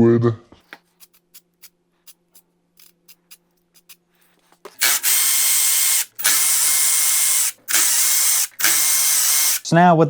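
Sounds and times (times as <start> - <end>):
cordless power tool whirring: 4.7 - 9.7.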